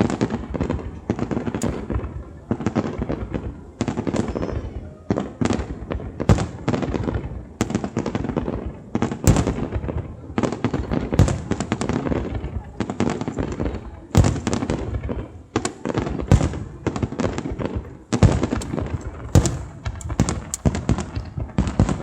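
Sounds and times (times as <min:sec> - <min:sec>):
loud fireworks booms: 0:00.0 - 0:22.0
fireworks shells bursting: 0:01.4 - 0:02.8, 0:17.7 - 0:22.0.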